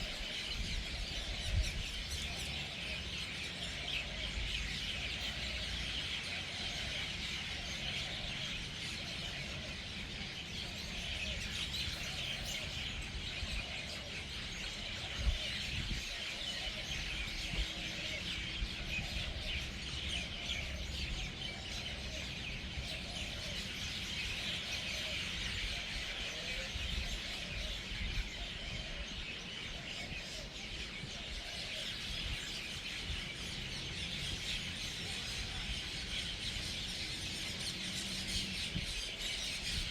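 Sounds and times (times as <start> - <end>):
birds chirping and chattering: 0.0 - 39.9.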